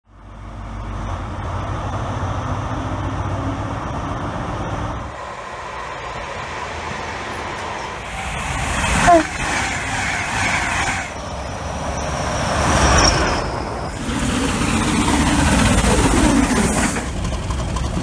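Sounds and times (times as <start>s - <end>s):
electric train passing: 0.2s - 18.0s
diesel engine running: 13.7s - 18.0s.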